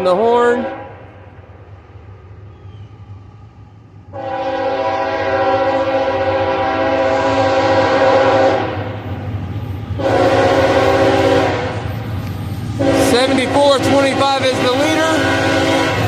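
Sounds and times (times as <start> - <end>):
locomotive engines rumbling: 0.0 - 16.0
locomotive air horn blasts: 0.5 - 1.2, 4.1 - 9.0, 10.0 - 11.9, 12.8 - 16.0.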